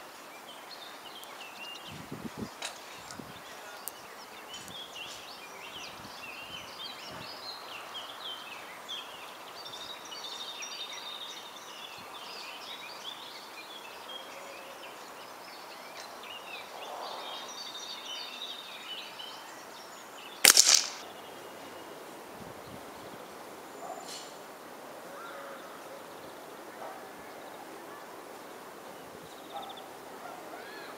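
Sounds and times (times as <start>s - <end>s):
birds chirping: 0.2s - 22.2s
air rifle shot: 20.4s - 21.0s.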